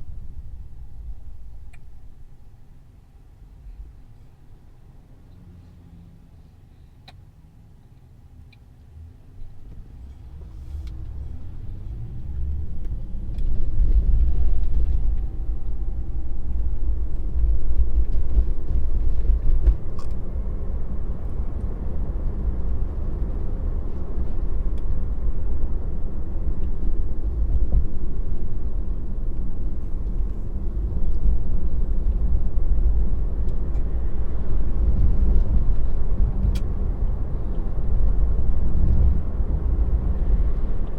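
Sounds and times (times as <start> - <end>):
tyre and road rumble: 9.4 - 40.9.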